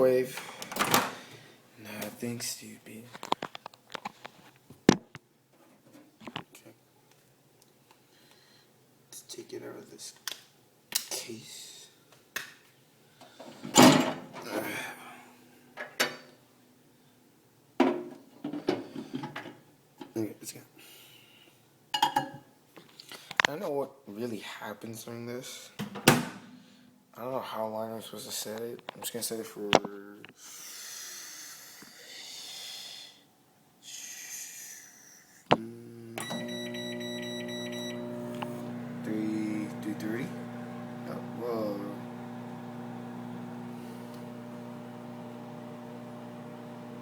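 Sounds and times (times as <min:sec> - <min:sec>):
microwave oven humming: 0:36.2 - 0:47.0.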